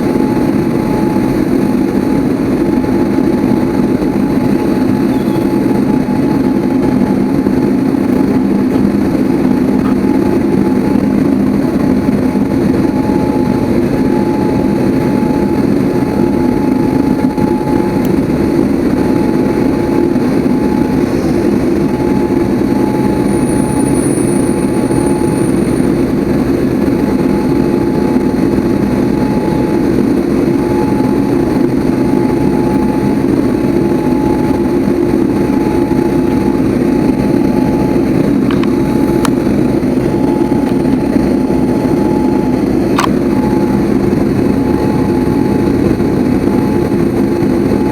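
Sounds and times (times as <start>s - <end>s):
faint steady whine: 0.0s - 47.9s
jet engine drone: 0.0s - 47.9s.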